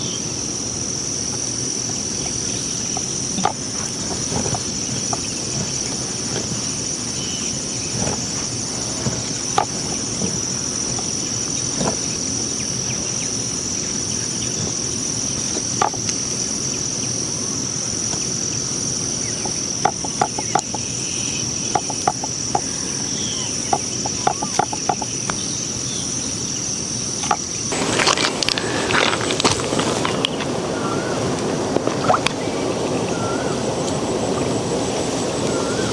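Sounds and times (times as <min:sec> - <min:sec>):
background hiss: 0:00.0 - 0:35.9
insects trilling: 0:00.0 - 0:35.9
rustling noise: 0:01.3 - 0:15.9, 0:27.7 - 0:32.9.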